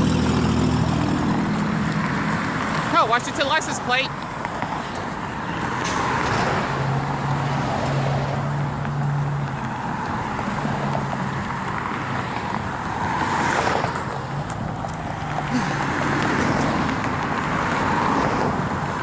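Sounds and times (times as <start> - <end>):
cars passing with tyre noise: 0.0 - 19.0.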